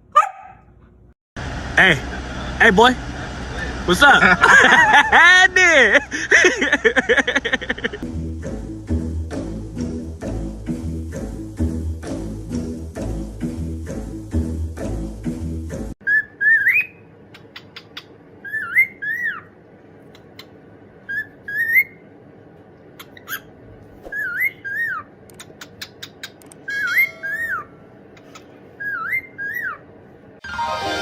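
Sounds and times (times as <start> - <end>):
sharp clicks: 25.3 - 26.6
bird whistling sliding notes: 26.6 - 27.8.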